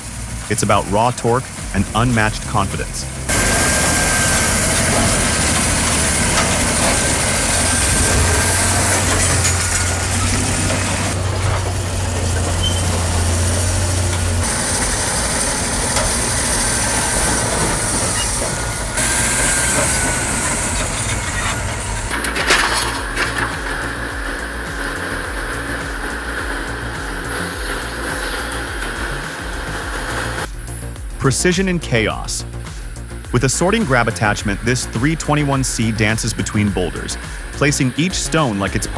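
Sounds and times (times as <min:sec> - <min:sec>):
diesel engine drone: 0:00.0 - 0:38.9
machinery hiss: 0:00.0 - 0:38.9
machinery rattling: 0:00.0 - 0:38.9.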